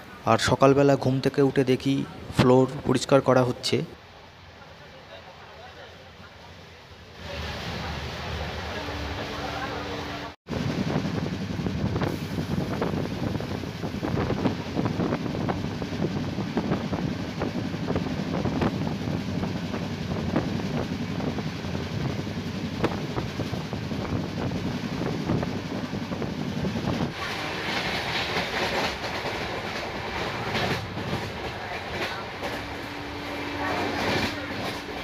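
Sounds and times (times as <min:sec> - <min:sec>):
train wheels rumbling on rails: 0:07.4 - 0:35.0.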